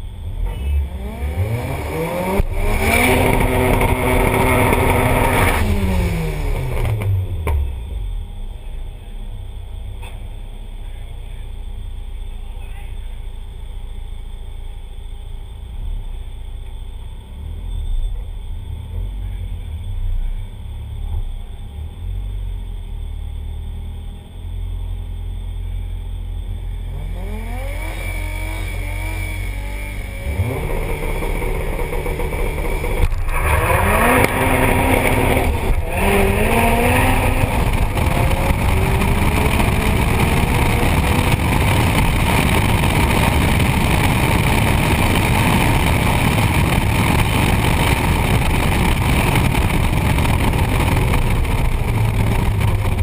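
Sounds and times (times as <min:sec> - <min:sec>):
race car engine revving: 0:00.3 - 0:07.7, 0:26.5 - 0:53.0
wind noise at speed: 0:01.8 - 0:07.7, 0:27.2 - 0:53.0.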